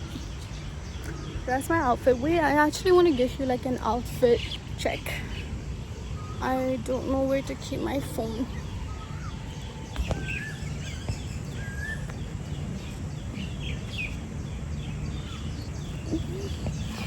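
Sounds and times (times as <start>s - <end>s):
low outdoor rumble: 0.0s - 17.0s
birds chirping and whistling: 4.3s - 17.0s.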